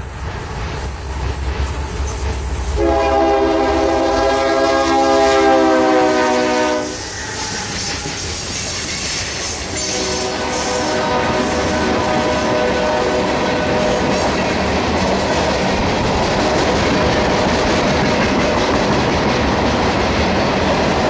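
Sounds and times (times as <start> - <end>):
train rumble: 0.0 - 21.0
train horn blast: 2.7 - 7.9, 9.7 - 14.5
wheel clatter of freight cars: 7.0 - 10.9.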